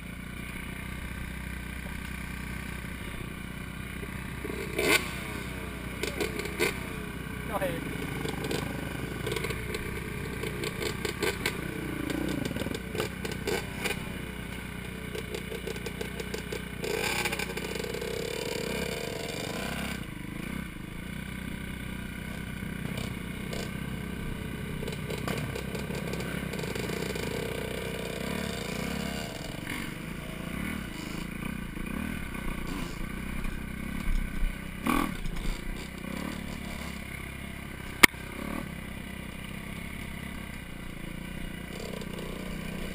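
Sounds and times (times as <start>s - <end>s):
dirt bike engine revving: 0.0s - 42.9s
bike clattering over rough ground: 4.3s - 18.1s, 24.7s - 29.8s.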